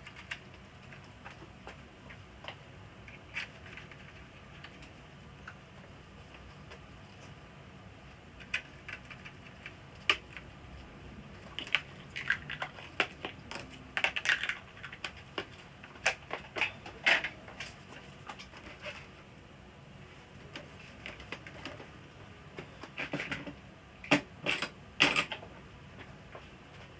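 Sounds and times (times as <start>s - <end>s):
small plastic parts clicking: 11.5s - 17.7s.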